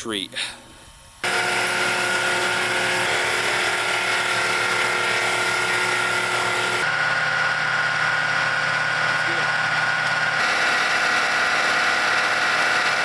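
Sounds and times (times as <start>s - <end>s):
sawmill running: 1.2s - 13.0s.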